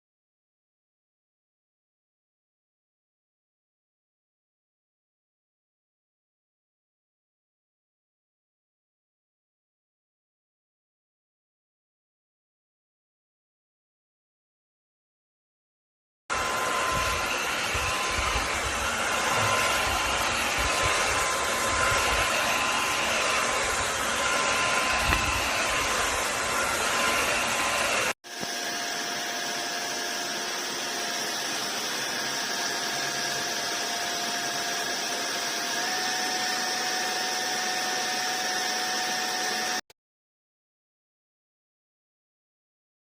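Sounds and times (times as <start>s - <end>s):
floor washer running: 16.3s - 39.9s.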